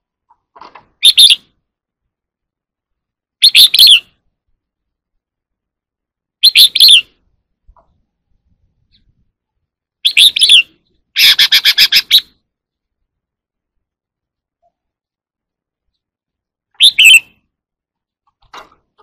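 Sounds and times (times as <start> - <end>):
bird singing warbled phrases: 1.0 - 1.6, 3.4 - 4.2, 6.4 - 7.2, 9.9 - 12.9, 16.7 - 17.5.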